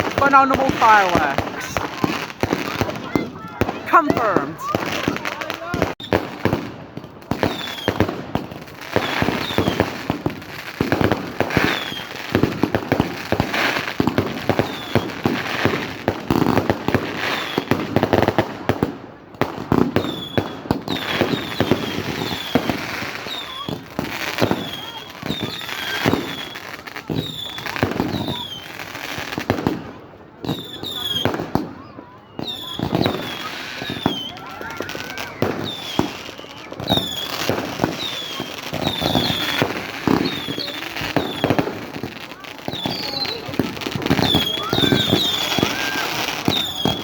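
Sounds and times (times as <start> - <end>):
fireworks bangs and crackles: 0.0 - 47.0
firework whistles: 7.3 - 15.8, 17.0 - 18.0, 19.9 - 29.1, 30.4 - 31.6, 32.2 - 47.0.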